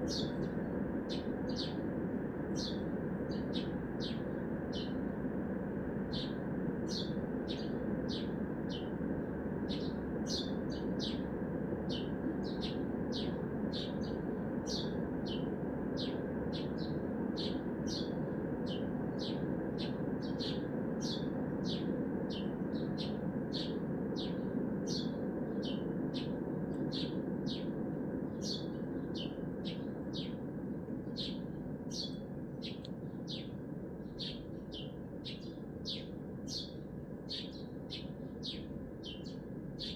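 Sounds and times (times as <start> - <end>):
small bird calling: 0.0 - 1.8, 28.4 - 30.4, 31.1 - 39.9
hum of city traffic: 0.0 - 39.9.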